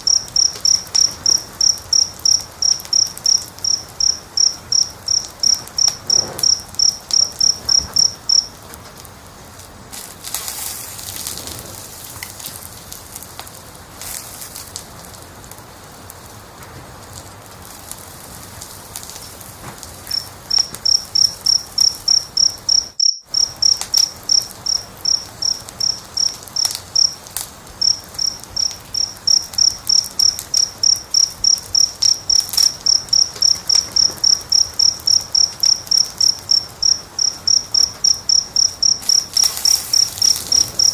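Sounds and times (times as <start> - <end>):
cricket chirping: 0.0 - 8.8, 18.6 - 40.9
wood fire crackling: 0.0 - 40.9.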